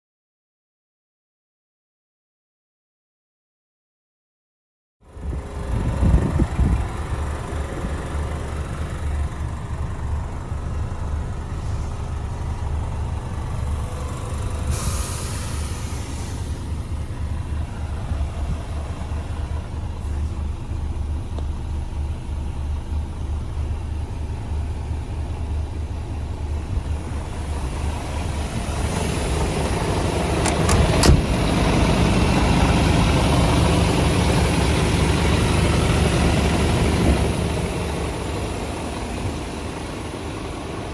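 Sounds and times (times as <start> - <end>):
truck diesel engine running: 5.0 - 40.9
air hiss: 14.6 - 16.8.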